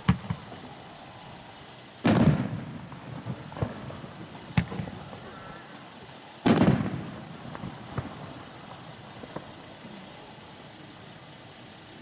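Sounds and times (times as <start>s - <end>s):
firework boom: 2.0s - 3.9s.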